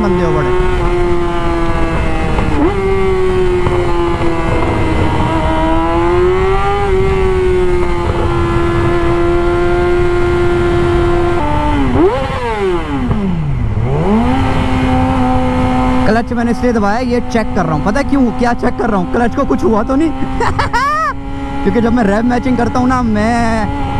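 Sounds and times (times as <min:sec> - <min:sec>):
wind noise: 0:00.0 - 0:17.2
motorcycle engine running: 0:00.0 - 0:23.9.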